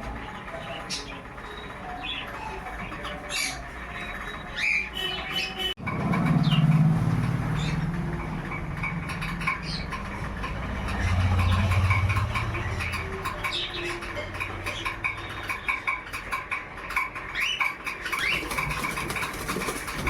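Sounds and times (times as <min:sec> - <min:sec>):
parrot squawks and chirps: 0:00.4 - 0:05.8.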